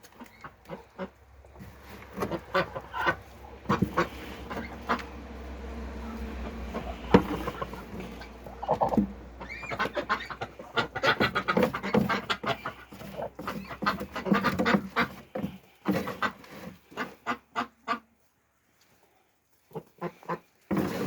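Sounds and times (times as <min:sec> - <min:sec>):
ducks quacking: 0:00.1 - 0:18.2, 0:19.6 - 0:20.6
ducks bills clicking in feed: 0:06.2 - 0:18.0.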